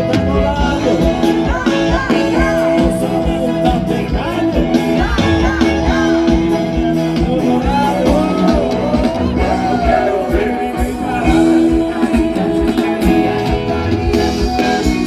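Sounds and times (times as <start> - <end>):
live band music: 0.0 - 15.0
person singing: 0.0 - 15.0.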